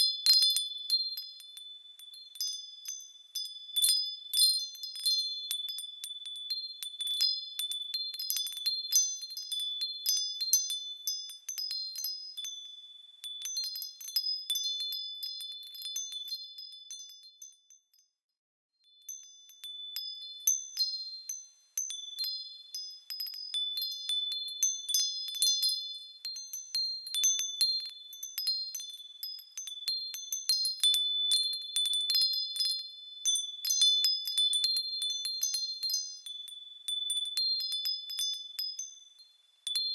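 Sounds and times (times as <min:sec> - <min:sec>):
small metal bells ringing: 0:00.0 - 0:18.2, 0:18.8 - 0:39.9.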